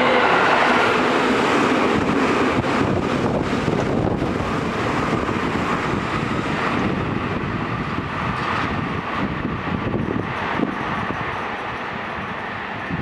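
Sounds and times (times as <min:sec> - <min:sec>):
train wheels rumbling on rail: 0:00.0 - 0:13.0
wind buffeting microphone: 0:00.0 - 0:13.0.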